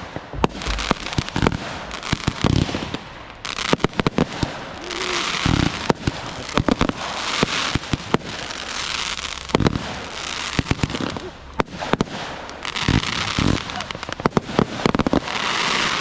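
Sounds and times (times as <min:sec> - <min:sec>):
fireworks bangs and pops: 0:00.0 - 0:16.0
fireworks crackling: 0:00.0 - 0:16.0.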